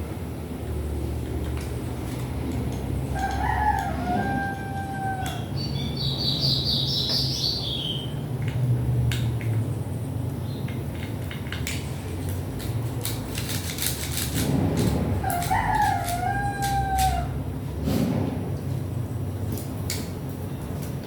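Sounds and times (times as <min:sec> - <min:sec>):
bird chirping: 0:05.3 - 0:08.2
small parts clicking and tapping: 0:10.6 - 0:17.2.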